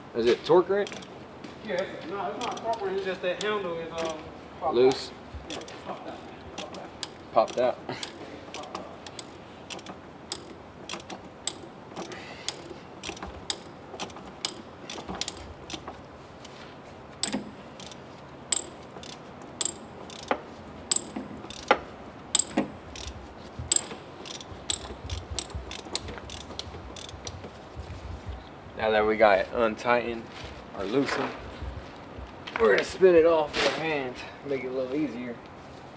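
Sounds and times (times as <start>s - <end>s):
ratchet wrench clicking: 0.8s - 1.1s, 2.4s - 5.8s, 6.5s - 16.0s, 17.2s - 27.4s.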